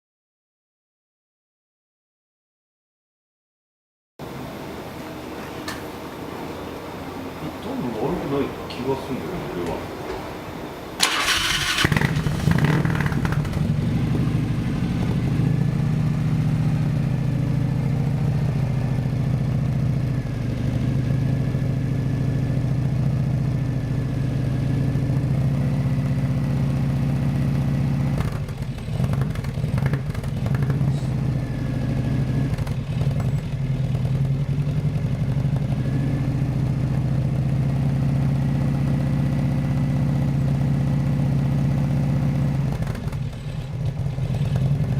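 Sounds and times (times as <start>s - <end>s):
motorcycle engine starting and idling: 11.0s - 44.9s.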